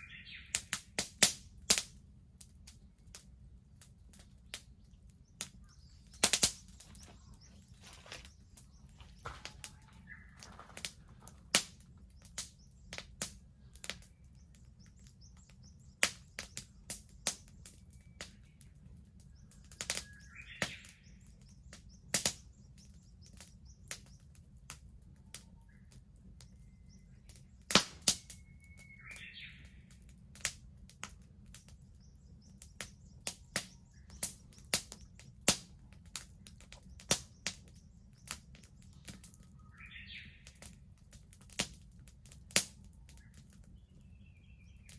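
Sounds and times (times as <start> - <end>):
bird calling: 0.0 - 0.6, 5.4 - 11.8, 27.9 - 29.9, 38.9 - 40.7
bonfire crackling and popping: 0.0 - 44.9.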